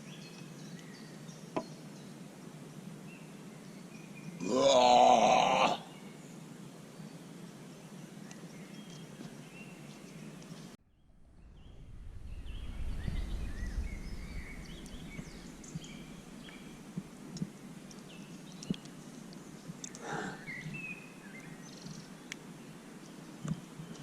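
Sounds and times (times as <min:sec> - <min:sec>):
small birds chirping: 0:00.0 - 0:24.0
low rumble: 0:10.9 - 0:17.5.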